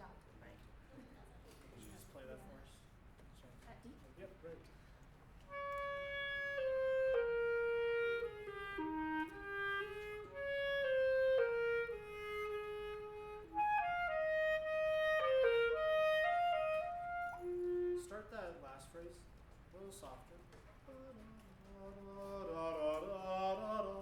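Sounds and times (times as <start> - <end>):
clarinet melody: 5.4 - 18.6, 20.9 - 24.0.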